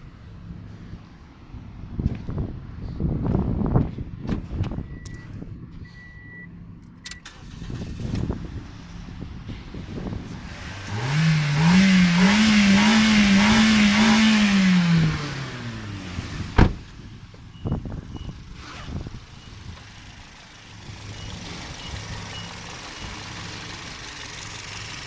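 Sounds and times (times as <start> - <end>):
car engine revving: 7.3 - 17.0.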